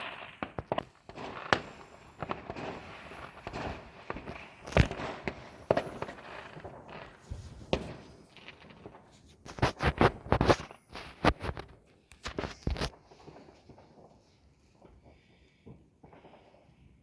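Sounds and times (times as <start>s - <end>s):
fireworks and firecrackers banging: 0.0s - 17.0s.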